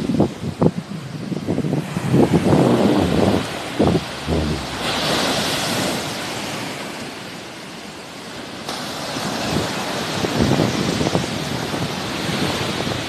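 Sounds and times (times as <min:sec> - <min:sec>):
wind buffeting microphone: 0:00.0 - 0:06.1
sea waves washing on shore: 0:00.3 - 0:13.0.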